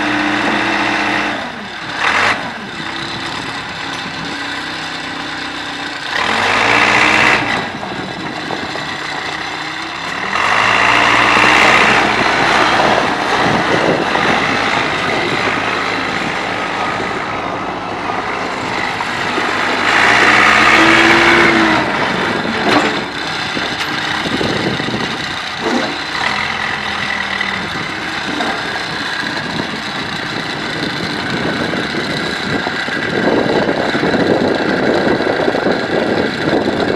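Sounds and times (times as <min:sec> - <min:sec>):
diesel engine revving: 0:00.0 - 0:36.9.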